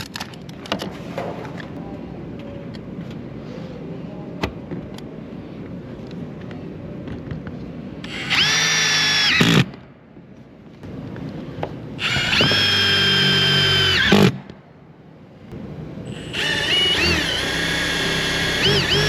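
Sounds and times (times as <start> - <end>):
power drill whining: 12.0 - 14.3, 16.1 - 19.0.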